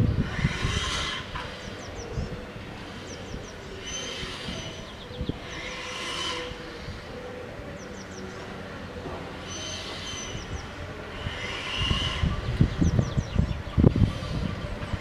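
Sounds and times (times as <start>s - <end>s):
train rumbling: 0.0s - 15.0s
wheel flanges squealing: 0.0s - 15.0s.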